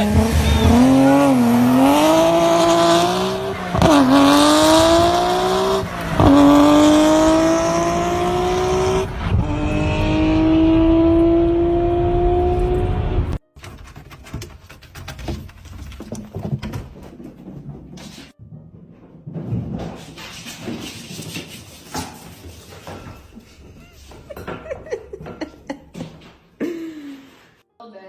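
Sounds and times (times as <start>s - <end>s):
racing car engine accelerating: 0.0s - 13.4s.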